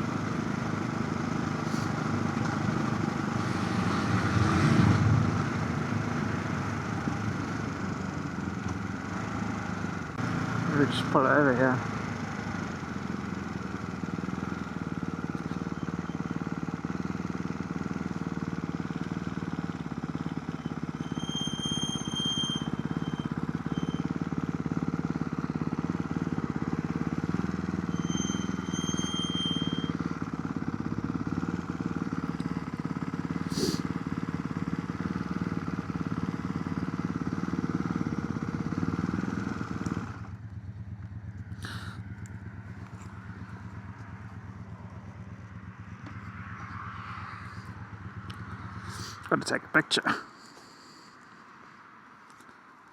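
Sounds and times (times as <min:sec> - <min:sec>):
motorcycle engine idling: 0:00.0 - 0:03.4, 0:05.3 - 0:49.4.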